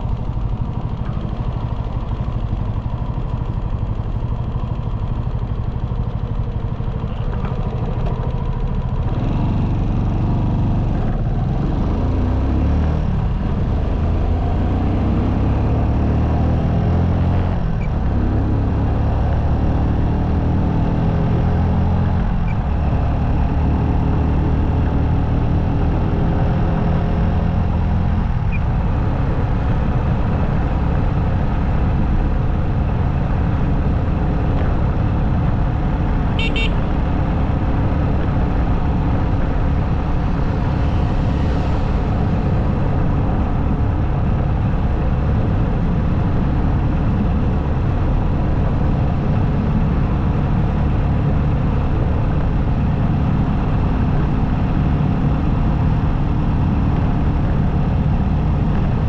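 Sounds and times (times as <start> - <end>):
motorcycle engine running: 0.0 - 59.0
road and wind noise: 0.0 - 59.0
vehicle horn toot: 36.4 - 36.9.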